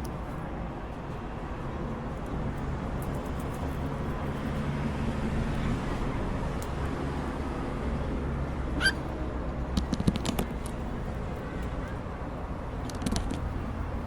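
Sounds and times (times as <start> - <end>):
cockatiel chirp: 8.8 - 9.0.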